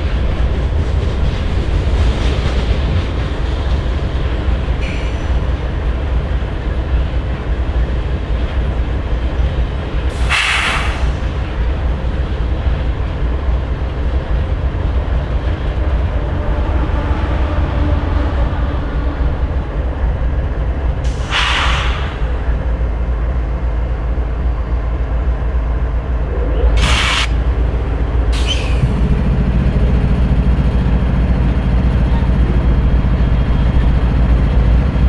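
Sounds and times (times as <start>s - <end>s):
locomotive idling: 11.0s - 35.0s.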